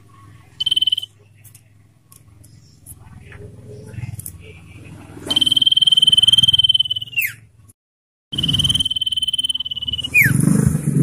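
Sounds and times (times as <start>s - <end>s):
bird trilled whistle: 0.6s - 1.1s, 5.3s - 7.4s, 8.4s - 10.4s.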